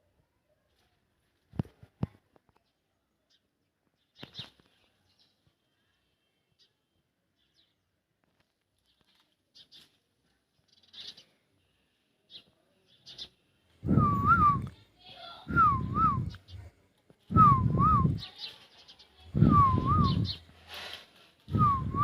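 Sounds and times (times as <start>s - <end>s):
faint bird chirps: 8.8s - 20.5s.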